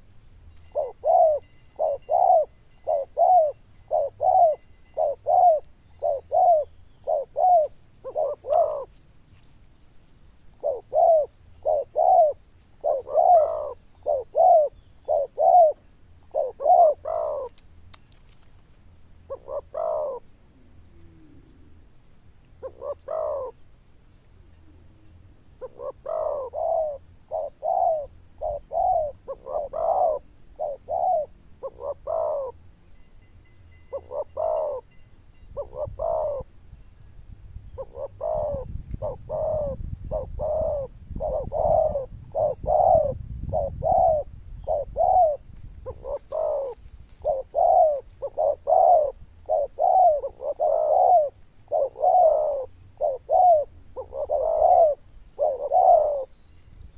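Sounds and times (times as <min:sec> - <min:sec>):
dove cooing: 0:00.6 - 0:09.8, 0:10.5 - 0:17.6, 0:19.2 - 0:21.8, 0:22.6 - 0:23.6, 0:24.6 - 0:32.6, 0:33.9 - 0:34.9, 0:35.5 - 0:36.5, 0:37.7 - 0:56.7.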